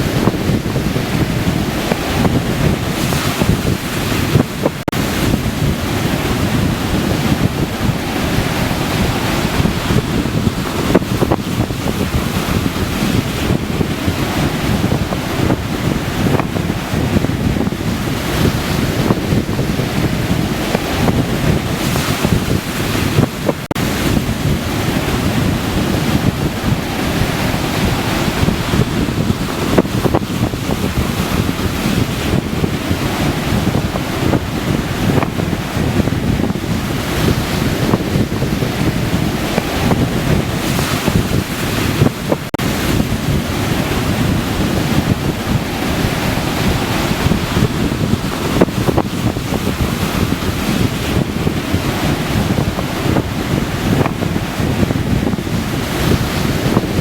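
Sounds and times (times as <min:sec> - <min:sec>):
surf washing onto beach: 0:00.0 - 0:57.0
wind buffeting microphone: 0:00.0 - 0:57.0.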